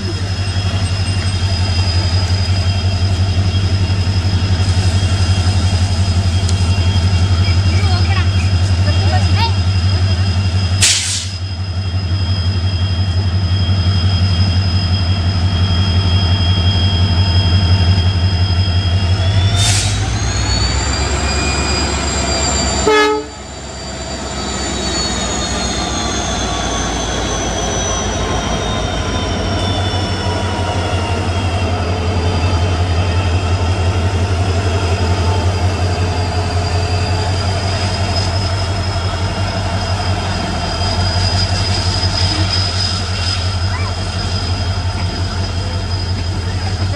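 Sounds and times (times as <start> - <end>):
diesel locomotive engine humming: 0.0 - 46.9
high engine whine: 0.0 - 46.9.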